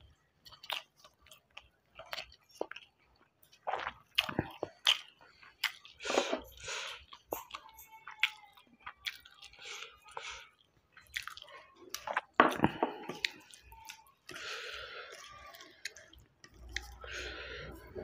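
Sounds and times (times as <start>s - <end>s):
wet squishing of food by hand: 0.0s - 18.0s
mouth chewing: 0.4s - 18.0s.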